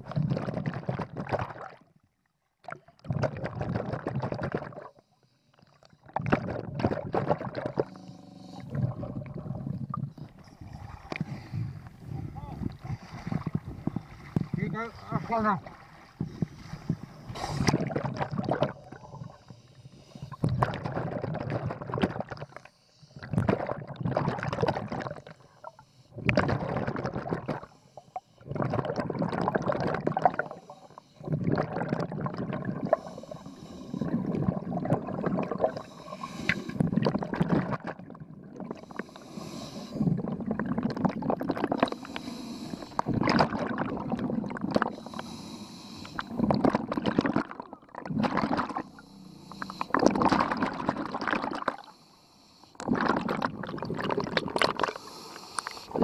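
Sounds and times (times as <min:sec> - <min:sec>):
exhaled bubbles gurgling: 0:00.0 - 0:02.0, 0:02.6 - 0:52.0, 0:52.7 - 0:56.0
scuba regulator inhale hiss: 0:07.9 - 0:08.8, 0:11.2 - 0:12.0, 0:16.3 - 0:17.8, 0:19.0 - 0:20.4, 0:30.4 - 0:31.3, 0:32.8 - 0:34.3, 0:35.6 - 0:36.9, 0:38.8 - 0:40.2, 0:41.8 - 0:43.1, 0:44.9 - 0:46.4, 0:48.8 - 0:50.2, 0:51.8 - 0:52.8, 0:54.8 - 0:56.0.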